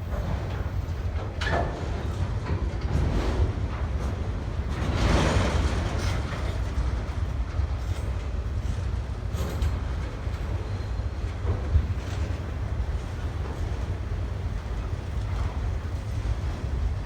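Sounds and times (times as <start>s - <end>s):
freight train rumbling: 0.0s - 17.0s
wheels clicking and clattering: 11.4s - 17.0s.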